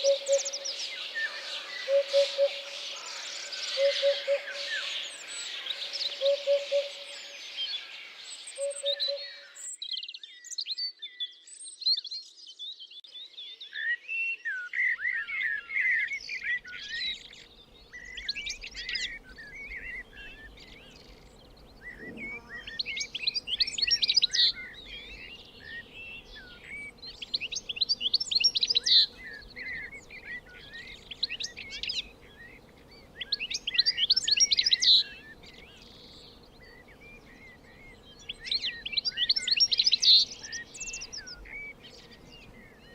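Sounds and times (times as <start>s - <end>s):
bird trilled song: 0.0s - 12.6s, 13.2s - 42.9s
songbirds singing: 0.0s - 42.9s.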